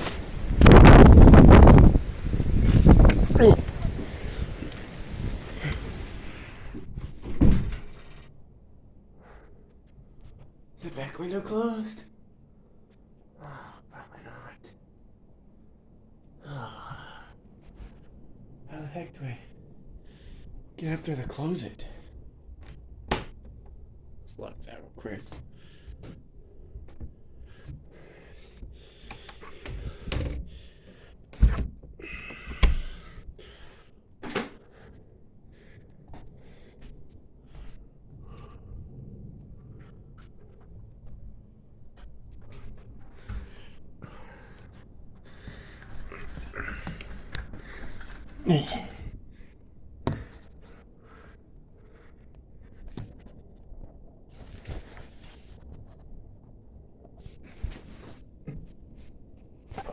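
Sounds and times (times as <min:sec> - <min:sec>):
rustling: 0:00.0 - 0:08.4.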